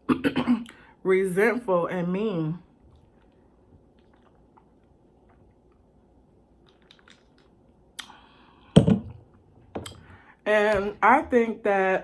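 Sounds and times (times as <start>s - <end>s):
food crunching while eating: 2.9s - 5.9s, 6.6s - 8.2s.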